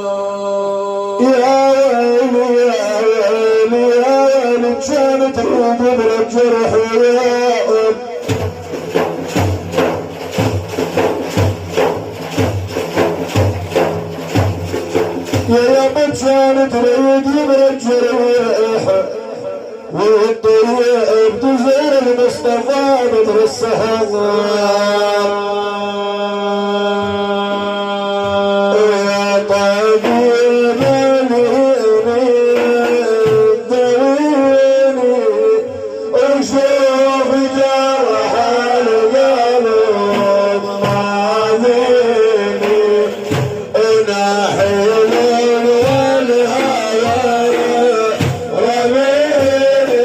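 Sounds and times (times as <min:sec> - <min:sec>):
man singing devotional song: 0:00.0 - 0:50.0
frame drums beating: 0:07.7 - 0:20.0, 0:26.9 - 0:50.0.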